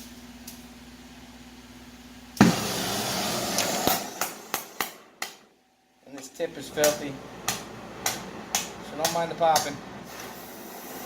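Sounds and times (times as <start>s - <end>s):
torch hissing: 2.4s - 5.2s, 10.0s - 11.0s
torch igniting with a whoosh: 2.4s - 5.2s
torch tip popping: 2.4s - 5.4s.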